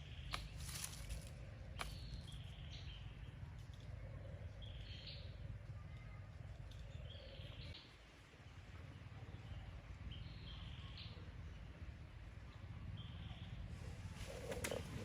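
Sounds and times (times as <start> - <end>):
bird calling: 13.1 - 15.0.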